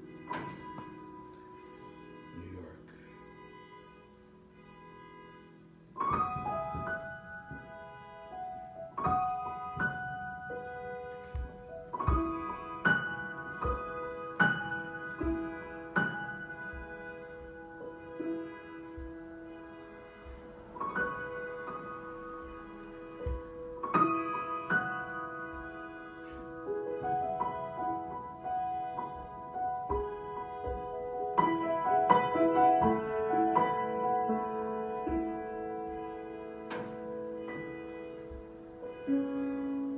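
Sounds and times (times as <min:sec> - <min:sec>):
piano chords: 0:00.0 - 0:39.9.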